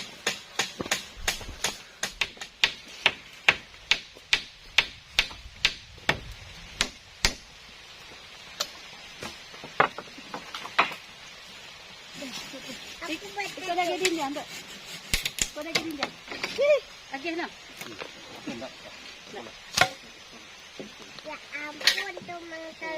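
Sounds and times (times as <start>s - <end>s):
sharp blows on wood: 0.0s - 7.5s, 13.4s - 16.1s.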